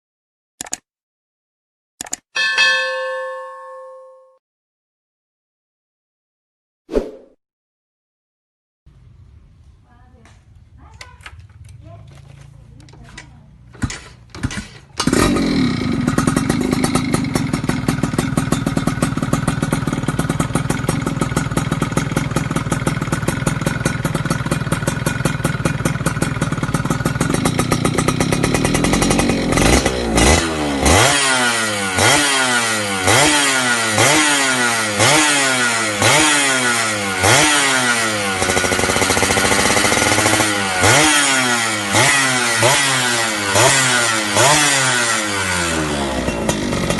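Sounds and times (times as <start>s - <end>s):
two-stroke engine idling and revving: 11.2s - 46.9s.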